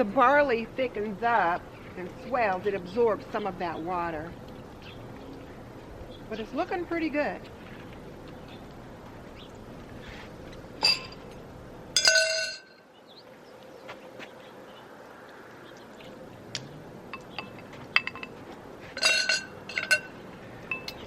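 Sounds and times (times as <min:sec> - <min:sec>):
metal cookware clinking on pot: 0:10.8 - 0:11.3, 0:12.0 - 0:12.8, 0:17.2 - 0:18.4, 0:19.0 - 0:21.0
light metal taps: 0:16.5 - 0:18.4.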